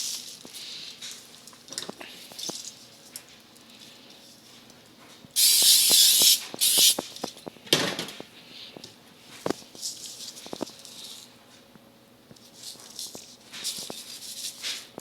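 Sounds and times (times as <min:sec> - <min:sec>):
aerosol spray hissing: 0:05.4 - 0:07.0.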